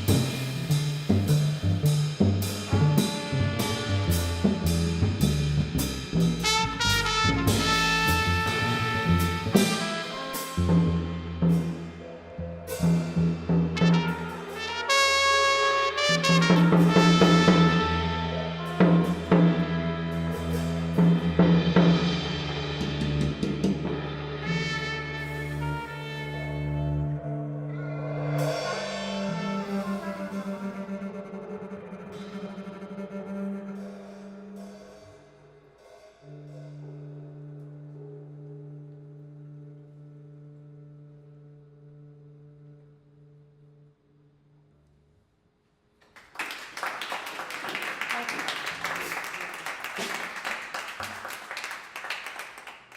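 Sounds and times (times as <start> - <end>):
brass horn long notes: 0.0 - 44.6
double bass note: 15.3 - 35.0.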